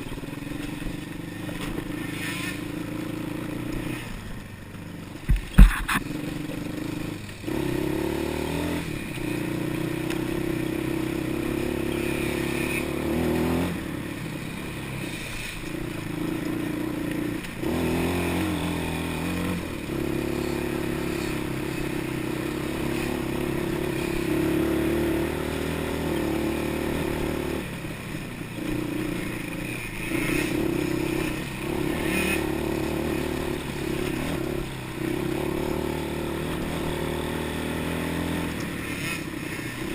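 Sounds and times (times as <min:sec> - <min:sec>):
off-road vehicle engine revving: 0:05.3 - 0:39.9.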